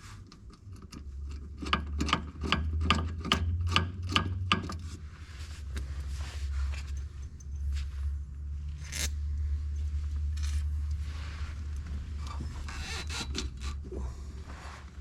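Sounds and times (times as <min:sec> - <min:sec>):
steady low hum: 0:04.6 - 0:15.0.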